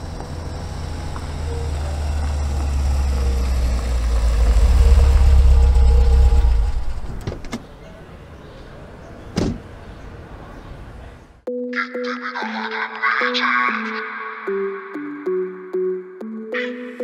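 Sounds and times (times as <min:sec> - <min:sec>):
car engine rumbling: 0:00.0 - 0:07.7.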